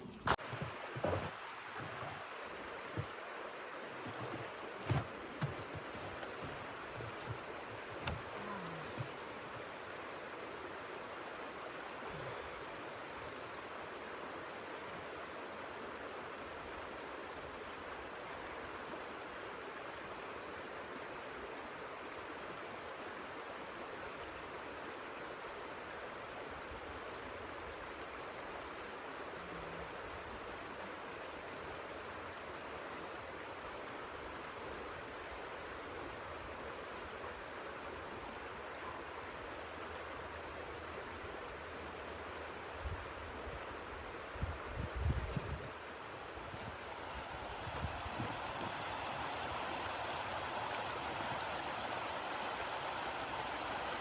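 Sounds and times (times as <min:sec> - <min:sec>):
soft knocks: 0:04.0 - 0:09.2.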